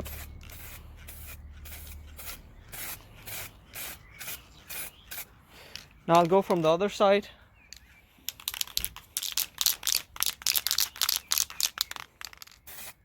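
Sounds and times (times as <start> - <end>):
spray paint can hissing: 0.0 - 5.3, 8.3 - 13.0.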